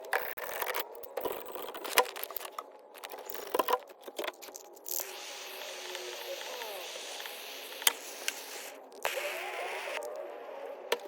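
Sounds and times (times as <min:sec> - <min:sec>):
steady hiss: 0:04.9 - 0:10.0.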